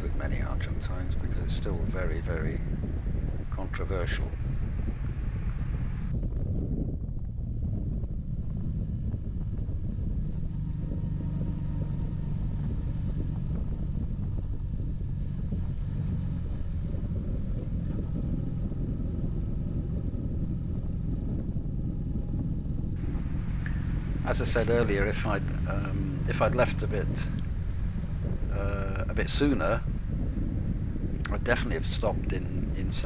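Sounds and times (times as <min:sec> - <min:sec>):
motorcycle engine cruising: 0:00.0 - 0:06.1, 0:23.0 - 0:33.0
wind and road noise: 0:00.0 - 0:33.0.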